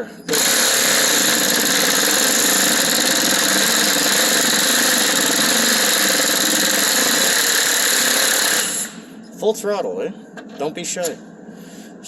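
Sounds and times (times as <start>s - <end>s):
air impact wrench running: 0.3s - 9.2s.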